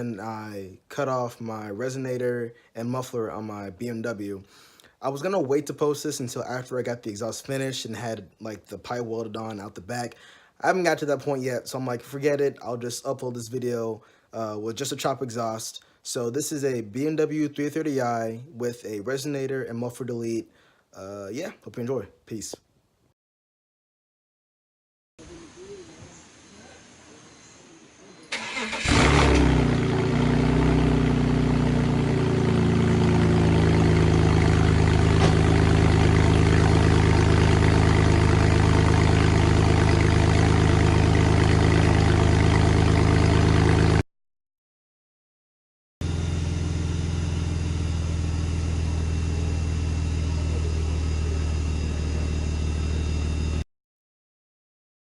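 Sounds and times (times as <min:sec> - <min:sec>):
car engine starting and idling: 0:28.3 - 0:44.0, 0:46.0 - 0:53.6.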